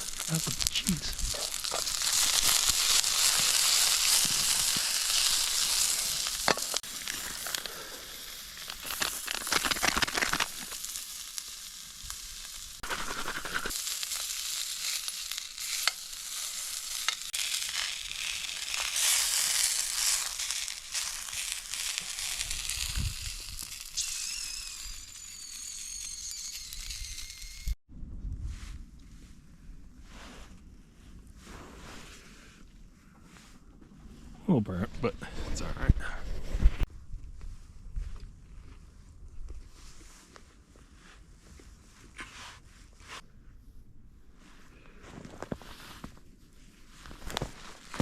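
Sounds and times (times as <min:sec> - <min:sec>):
popping in frying pan: 0:00.0 - 0:07.7, 0:08.3 - 0:27.8
food sizzling in a pan: 0:00.0 - 0:27.8.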